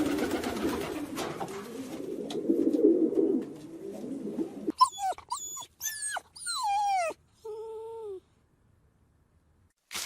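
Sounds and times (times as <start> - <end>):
high whimpering cries: 4.7 - 8.4.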